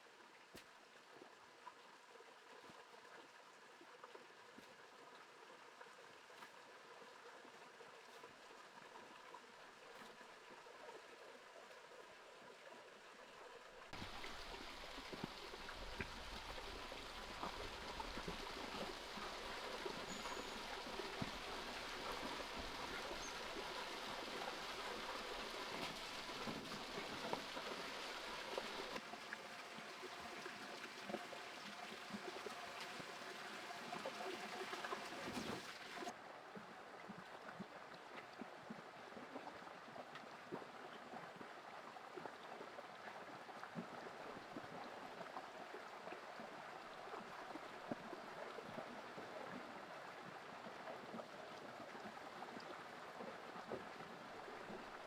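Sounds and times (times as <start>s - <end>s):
small water drips: 0.1s - 12.8s, 13.7s - 55.0s
rushing water: 13.7s - 55.0s.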